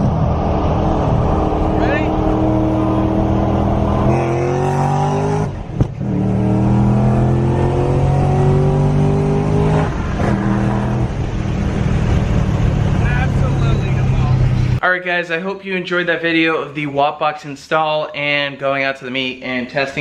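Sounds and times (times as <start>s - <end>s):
car engine accelerating: 0.0s - 14.8s.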